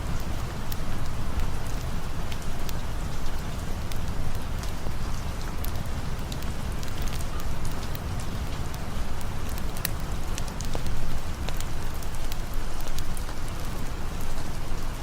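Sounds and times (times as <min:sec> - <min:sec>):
steady rain falling: 0:00.0 - 0:15.0
campfire crackling: 0:00.1 - 0:15.0.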